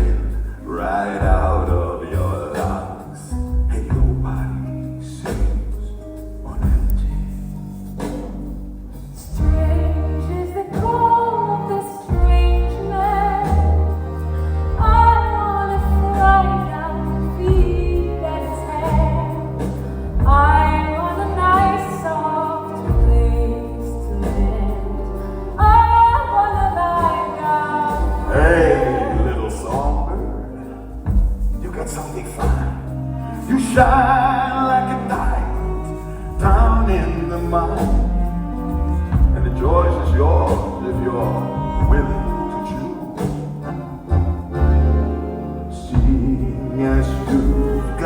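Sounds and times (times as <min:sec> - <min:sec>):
live band playing: 0:00.0 - 0:48.0
person singing: 0:09.3 - 0:30.9, 0:45.7 - 0:48.0.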